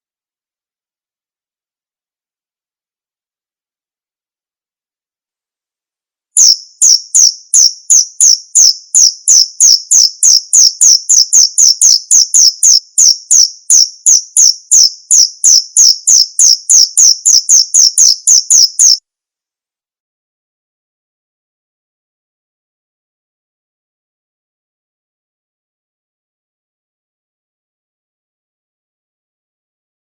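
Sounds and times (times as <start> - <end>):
cricket chirping: 6.4 - 19.0.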